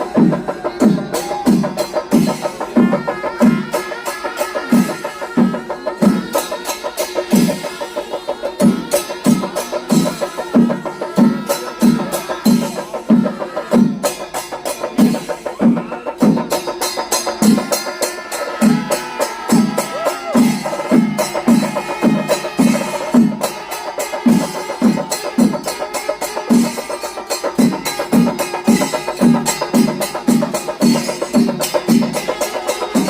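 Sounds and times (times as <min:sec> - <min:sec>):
clatter of sticks and cymbals: 0:00.0 - 0:33.0.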